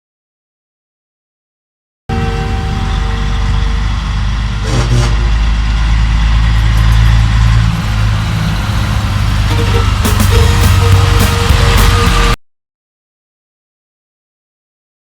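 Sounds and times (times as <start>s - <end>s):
truck engine running: 2.1s - 12.4s.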